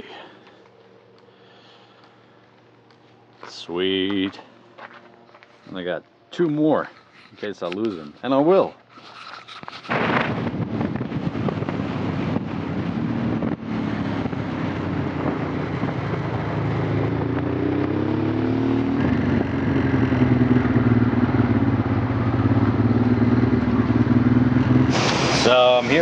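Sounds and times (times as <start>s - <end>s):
motorcycle engine running: 10.4s - 26.0s.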